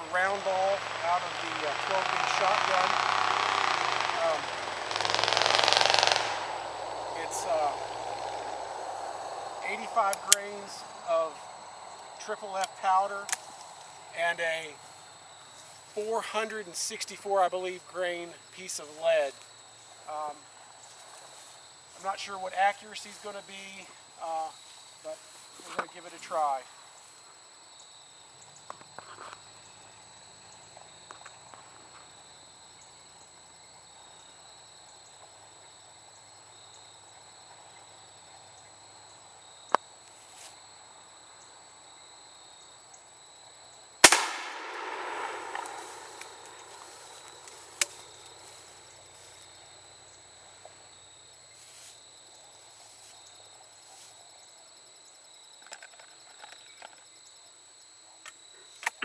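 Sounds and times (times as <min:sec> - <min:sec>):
high insect trill: 0:00.0 - 0:59.0
shotgun shot echoing: 0:04.9 - 0:06.8, 0:44.0 - 0:46.8
sharp click: 0:47.8 - 0:48.0.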